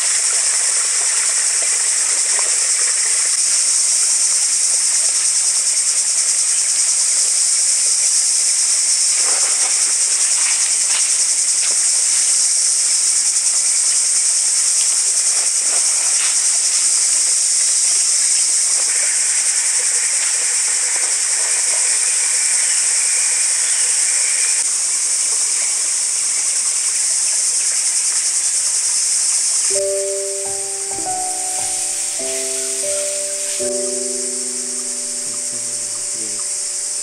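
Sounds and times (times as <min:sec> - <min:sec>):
high-pitched insect drone: 0:29.7 - 0:37.0.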